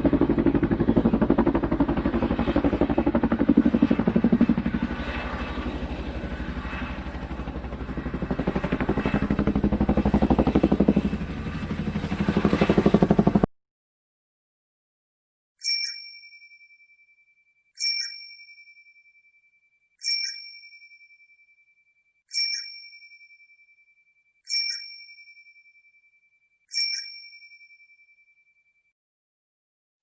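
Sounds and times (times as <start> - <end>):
bicycle bell ringing: 15.6 - 16.6, 17.8 - 18.8, 20.0 - 21.2, 22.3 - 23.5, 24.5 - 25.7, 26.7 - 28.0.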